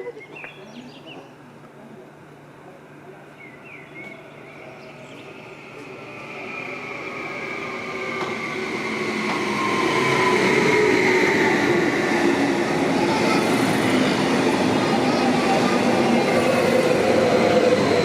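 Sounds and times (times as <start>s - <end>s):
train running: 3.9s - 18.0s.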